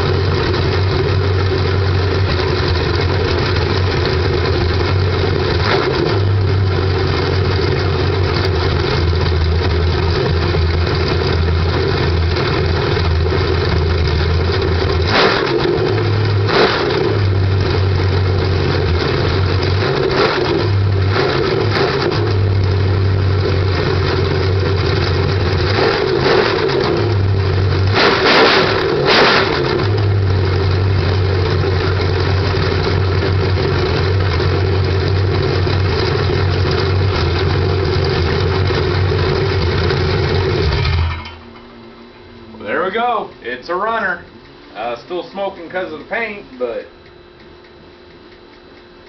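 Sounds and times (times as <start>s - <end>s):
car engine running: 0.0s - 47.4s
engine throttle blips: 0.0s - 49.0s.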